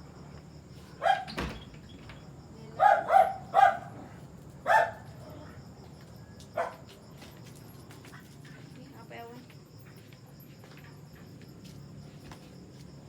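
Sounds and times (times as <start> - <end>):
insects chirping: 0.0 - 13.0
dog barking: 1.0 - 1.3, 2.8 - 5.1, 6.6 - 6.8.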